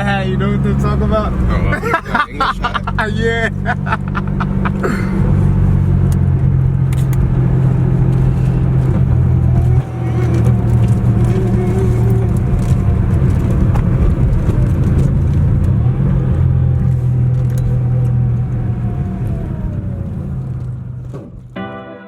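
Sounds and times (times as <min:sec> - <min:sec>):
car engine low rumble: 0:00.0 - 0:21.6
music: 0:21.6 - 0:22.0.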